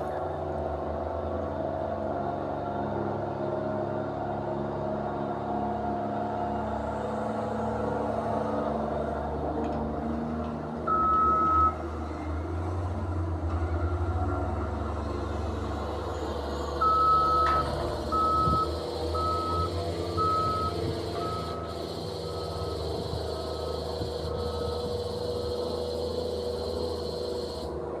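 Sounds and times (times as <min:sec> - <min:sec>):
low engine hum: 0:00.0 - 0:28.0
reversing alarm beeping: 0:10.9 - 0:11.8, 0:16.7 - 0:27.7.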